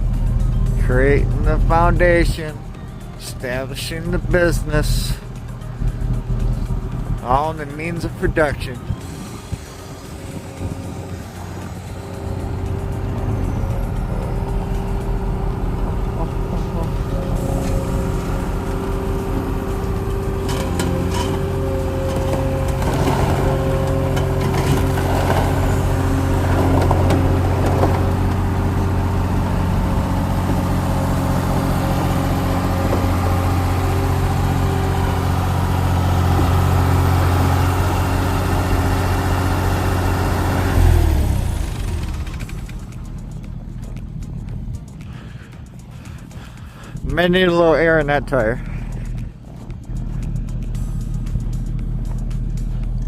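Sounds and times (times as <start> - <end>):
diesel engine running: 0.0 - 53.0
clanks and rattles: 8.9 - 37.8, 40.7 - 47.1.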